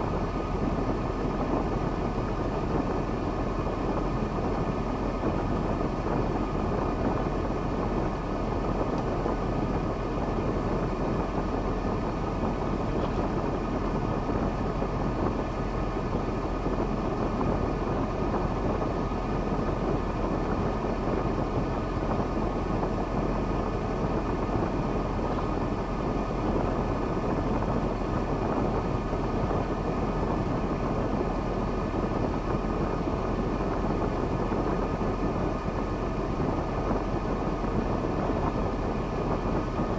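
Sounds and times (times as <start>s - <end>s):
truck diesel engine running: 0.0s - 39.9s.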